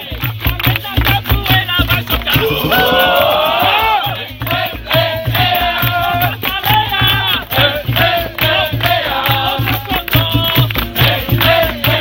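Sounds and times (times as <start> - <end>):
rattling hand percussion: 0.2 - 12.0
steady drum beat: 2.3 - 4.2
voices singing: 2.3 - 5.6.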